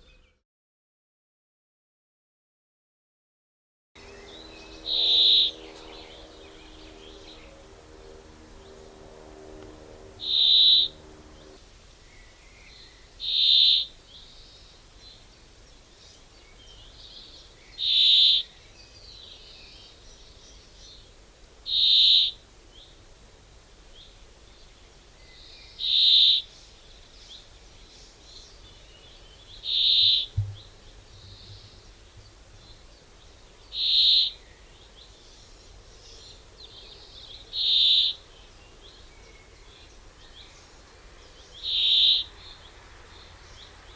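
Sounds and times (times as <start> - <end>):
faint bird chirps: 4.0 - 7.6, 33.5 - 43.9
low thump: 30.3 - 31.7.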